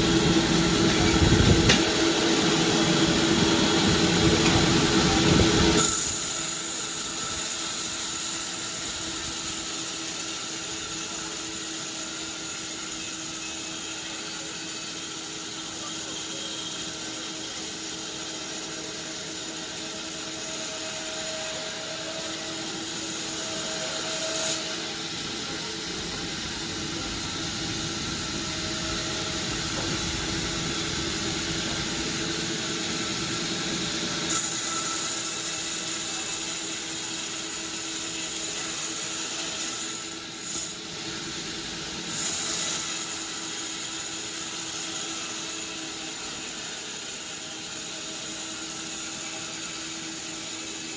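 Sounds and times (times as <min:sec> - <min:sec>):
saw whining through wood: 0:00.0 - 0:50.9.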